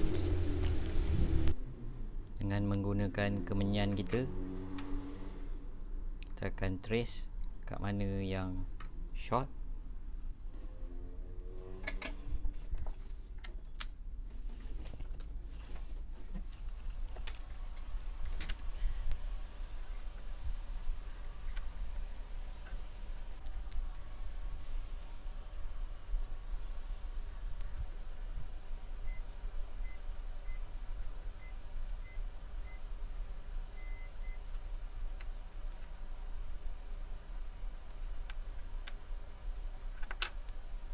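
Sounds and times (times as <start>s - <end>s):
low steady hum: 5.4s - 40.9s
short electronic beeps: 29.8s - 30.6s, 31.4s - 32.8s, 33.8s - 34.4s.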